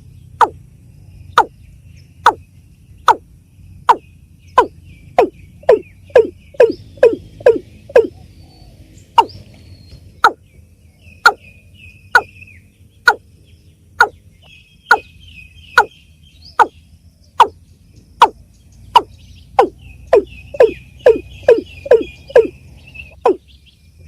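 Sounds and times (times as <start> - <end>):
faint high bird chirps: 0.0 - 24.0
bird calling falling notes: 4.6 - 8.2, 19.0 - 23.4.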